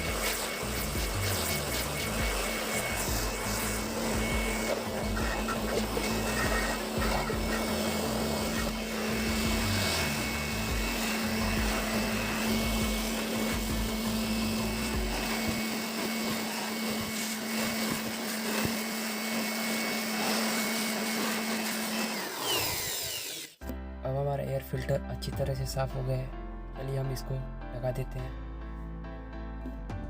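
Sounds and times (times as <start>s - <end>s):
compressed air hissing: 0.0s - 15.6s
motor hum: 0.0s - 23.6s.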